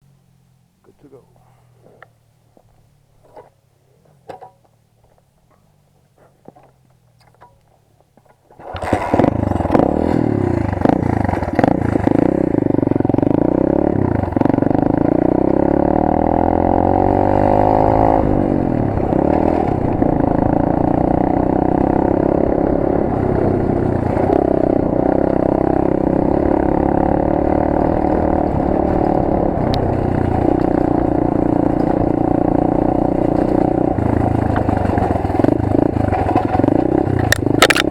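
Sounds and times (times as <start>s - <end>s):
pit bike engine revving: 8.6s - 37.9s
chassis rattle: 18.8s - 37.9s.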